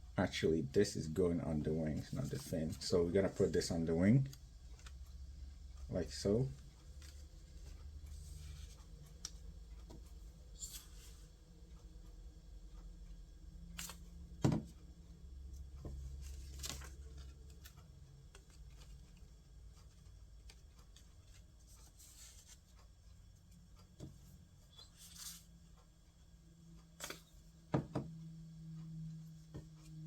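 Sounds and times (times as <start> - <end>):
low steady hum: 0.0 - 30.0
paper rustling: 16.2 - 17.8.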